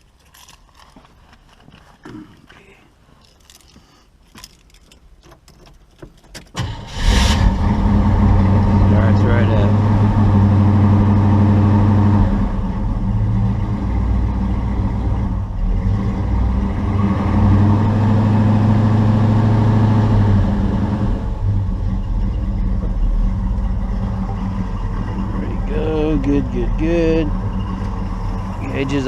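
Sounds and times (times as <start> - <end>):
engine running: 6.6 - 29.0.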